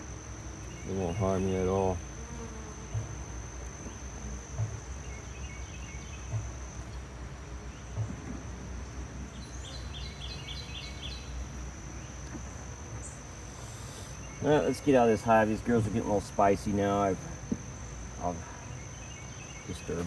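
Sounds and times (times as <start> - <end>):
bees buzzing: 0.0 - 20.0
high insect trill: 0.0 - 20.0
soft low bumps: 2.8 - 10.1
bird chirps: 9.4 - 11.4.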